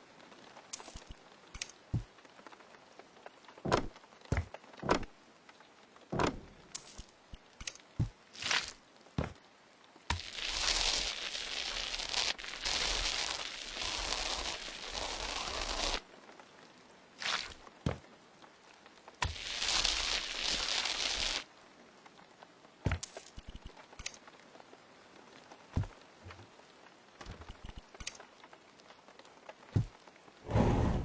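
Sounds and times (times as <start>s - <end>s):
rough rustling tearing noise: 8.3s - 8.8s, 10.1s - 16.1s, 19.2s - 21.5s
short scrapes: 30.5s - 31.0s.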